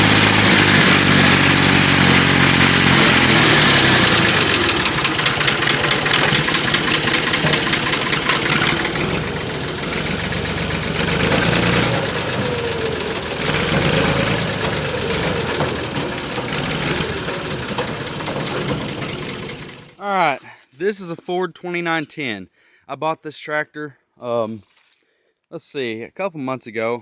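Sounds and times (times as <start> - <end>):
tractor engine running with clatter: 0.0 - 20.0.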